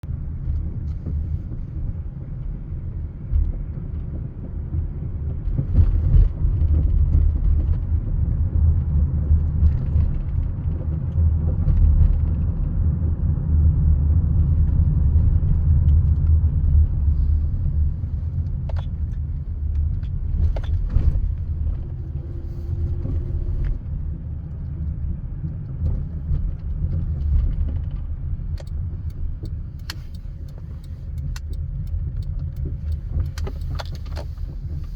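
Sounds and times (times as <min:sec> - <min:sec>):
van low rumble: 0:00.0 - 0:34.9
sharp clicks: 0:28.6 - 0:34.4.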